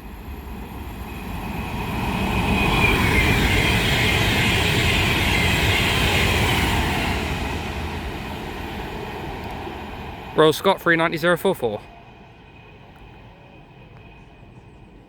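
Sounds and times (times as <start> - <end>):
electric train passing at speed: 0.0 - 15.0.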